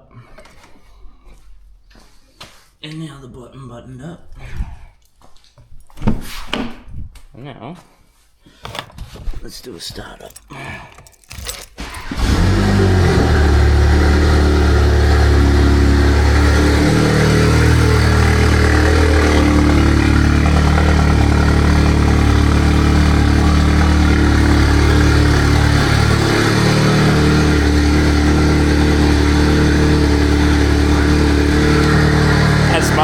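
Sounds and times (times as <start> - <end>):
car engine idling: 10.0 - 33.0.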